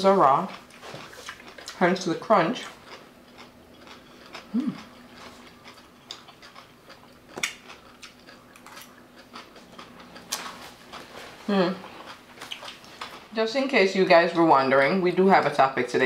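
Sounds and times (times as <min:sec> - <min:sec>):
crunchy chewing: 0:00.3 - 0:13.4
person humming mm: 0:04.5 - 0:04.8.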